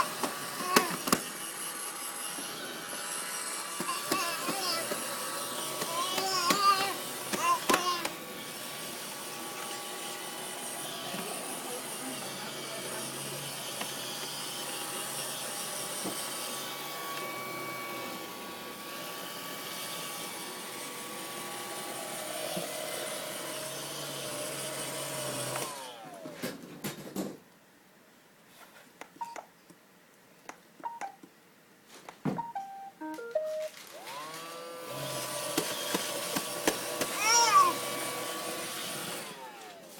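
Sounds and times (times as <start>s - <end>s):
vacuum cleaner motor running: 0.0s - 26.3s, 33.9s - 39.9s.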